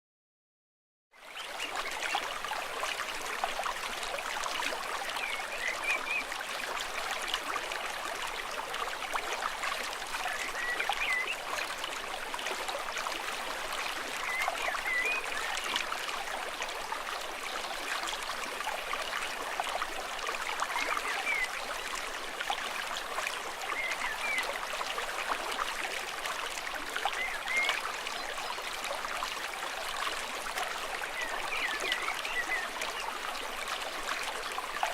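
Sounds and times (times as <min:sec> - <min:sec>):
stream trickling: 0:01.2 - 0:34.9.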